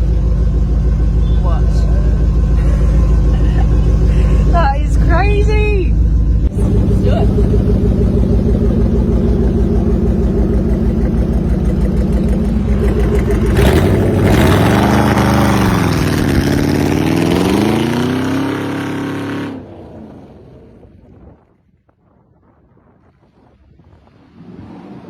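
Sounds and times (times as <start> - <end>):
car engine revving: 0.0 - 21.3.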